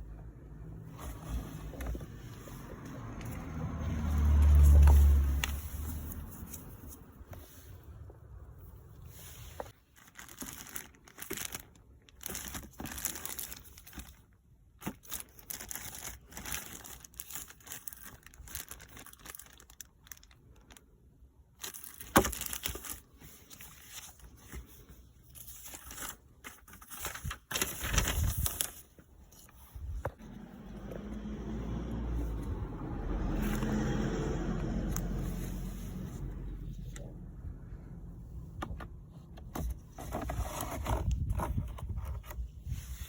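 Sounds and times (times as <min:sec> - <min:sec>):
rustling and crinkling of wrapping: 0:00.9 - 0:31.0.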